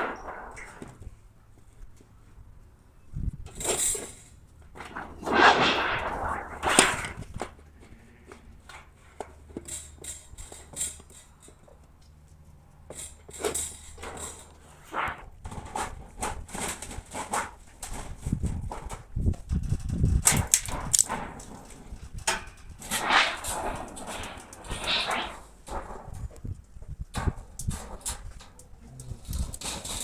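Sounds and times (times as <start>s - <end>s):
sheet-metal bending machine clatter: 22.9s - 25.9s.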